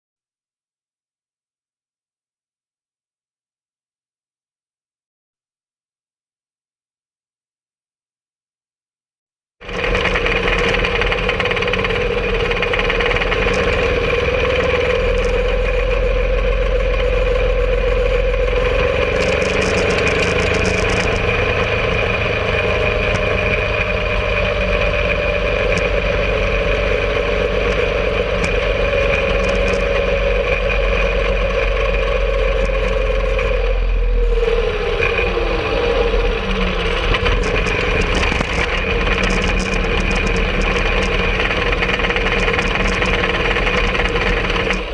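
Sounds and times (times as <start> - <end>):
rail cart engine running: 9.6 - 44.9.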